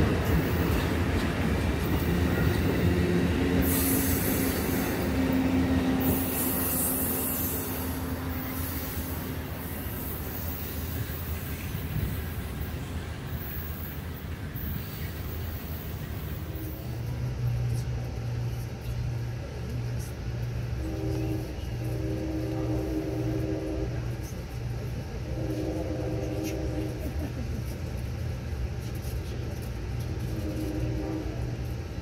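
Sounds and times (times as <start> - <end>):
train rumble from inside: 0.0 - 32.0
muffled train horn blasts: 1.8 - 11.1, 16.2 - 17.8, 20.6 - 27.1, 30.0 - 32.0.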